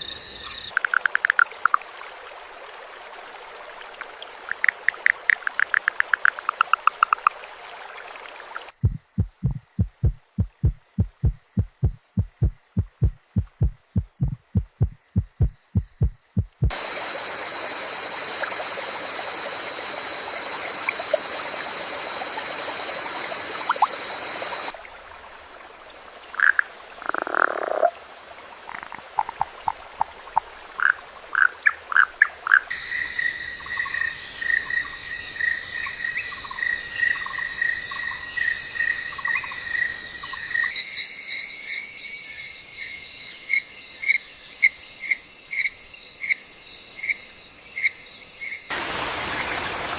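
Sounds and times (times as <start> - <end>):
frog calls: 0.0 - 1.9, 4.0 - 7.4, 26.2 - 40.8
rain hiss: 15.7 - 39.7, 48.7 - 49.9
insect trilling: 30.7 - 48.7.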